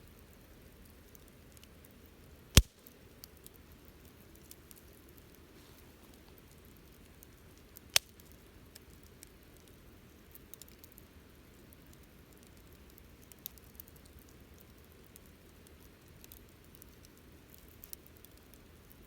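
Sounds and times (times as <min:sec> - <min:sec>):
campfire crackling softly: 0:00.0 - 0:19.0
loud sharp fire pop: 0:02.6 - 0:02.8.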